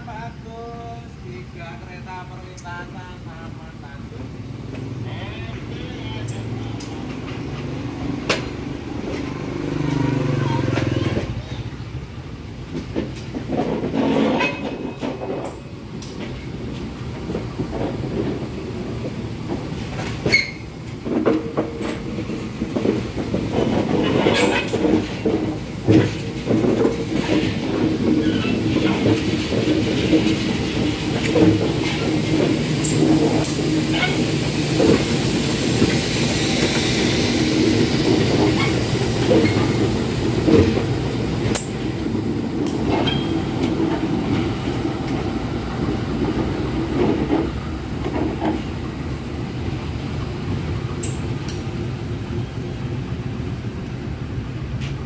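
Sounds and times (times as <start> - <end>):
train wheels clacking: 12.7 - 48.9, 51.0 - 51.8.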